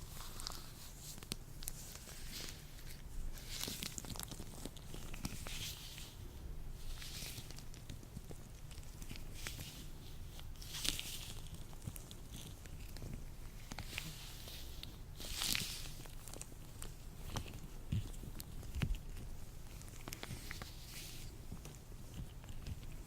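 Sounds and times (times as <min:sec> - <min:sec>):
latex gloves rubbing: 0:08.6 - 0:23.0.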